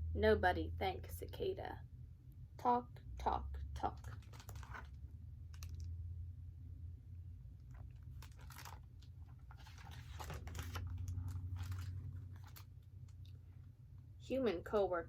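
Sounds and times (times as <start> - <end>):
low steady hum: 0.0 - 15.0
paper rustling and crinkling: 4.0 - 5.9, 7.6 - 13.3.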